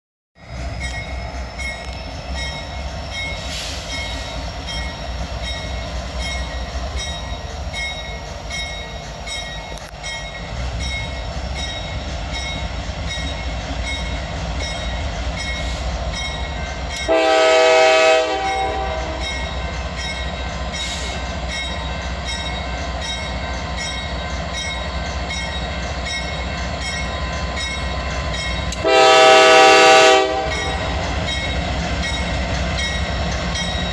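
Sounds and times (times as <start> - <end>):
locomotive rumble: 0.4 - 33.9
train wheels on rails: 0.4 - 33.9
train horn blast: 17.0 - 19.5, 28.8 - 31.1.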